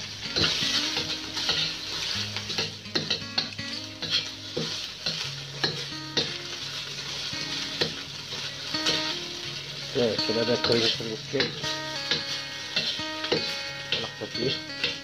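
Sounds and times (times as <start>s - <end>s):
fishcake sizzling in oil: 0.0s - 15.0s
metal ladle scraping wok: 10.7s - 14.1s.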